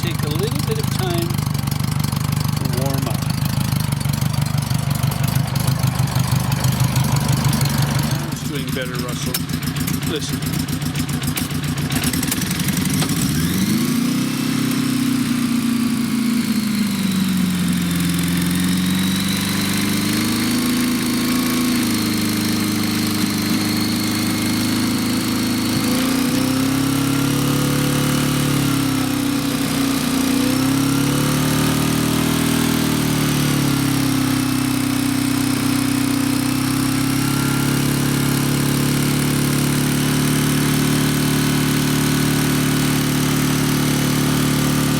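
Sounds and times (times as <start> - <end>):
motorcycle engine warming up: 0.0 - 44.9.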